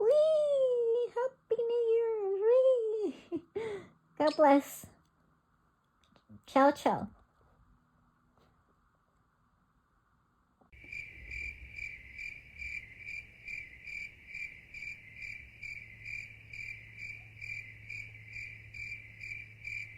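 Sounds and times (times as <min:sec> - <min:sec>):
low steady hum: 0:00.0 - 0:19.9
cricket chirping: 0:10.7 - 0:19.9.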